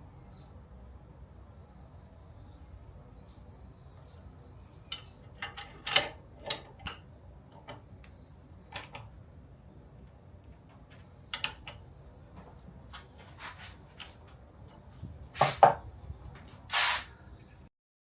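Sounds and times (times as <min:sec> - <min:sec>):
tools clicking and knocking: 0:04.8 - 0:09.1, 0:10.4 - 0:12.6
short scrape: 0:13.2 - 0:13.8, 0:16.7 - 0:17.2.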